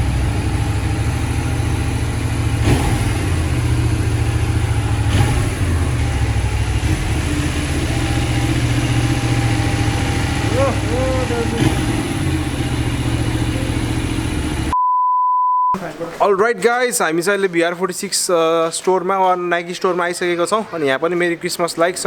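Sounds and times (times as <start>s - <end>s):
motorcycle engine rumbling: 0.0s - 14.8s.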